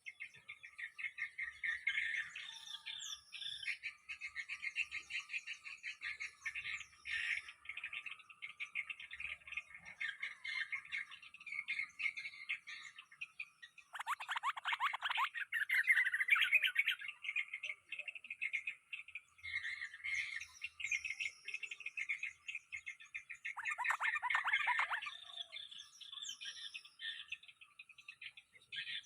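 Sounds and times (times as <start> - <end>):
birds chirping and chattering: 0.0 - 29.0
rapid falling bird calls: 13.8 - 17.1, 23.4 - 25.4.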